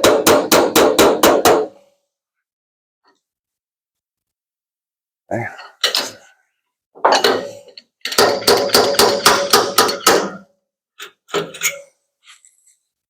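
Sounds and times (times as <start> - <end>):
hammer rapping steel panel: 0.0 - 1.8, 7.1 - 10.5.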